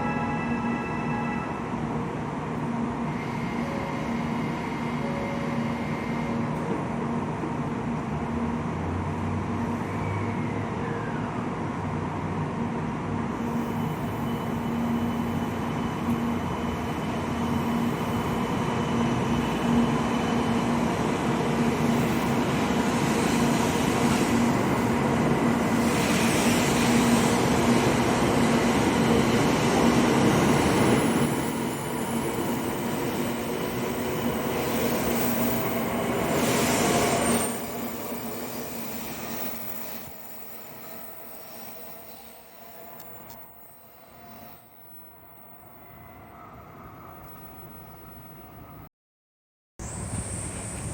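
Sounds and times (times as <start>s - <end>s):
train interior rumble and hum: 49.8s - 50.9s.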